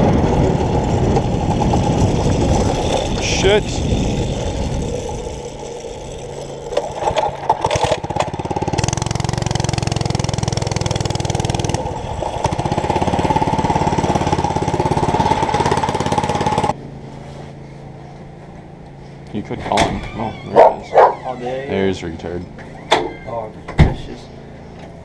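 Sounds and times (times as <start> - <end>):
mini bike engine running: 0.0 - 16.8.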